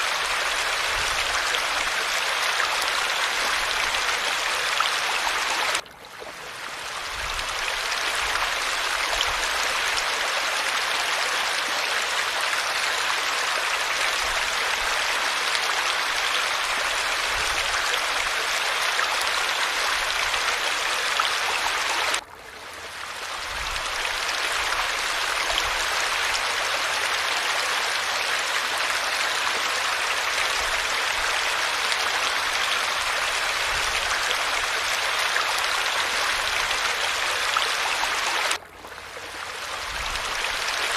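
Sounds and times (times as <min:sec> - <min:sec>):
falling water rushing: 0:00.0 - 0:05.8, 0:06.4 - 0:40.9.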